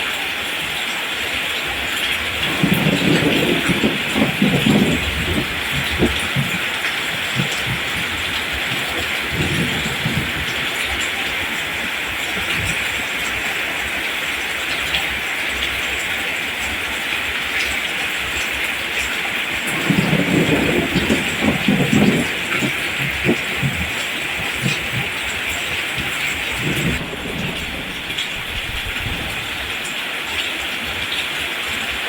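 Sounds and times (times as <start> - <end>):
steady rain: 0.0 - 32.0
low rumbling: 2.4 - 10.6, 19.6 - 29.8.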